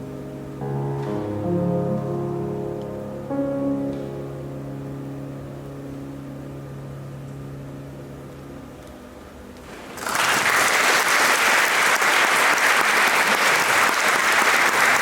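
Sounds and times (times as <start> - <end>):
piano chord: 0.0 - 10.0
audience applause: 9.8 - 15.0.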